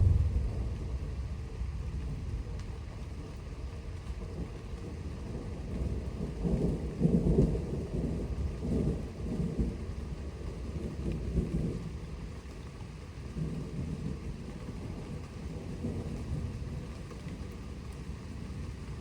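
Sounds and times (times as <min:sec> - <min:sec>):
thunder rumbling: 0:00.0 - 0:12.3.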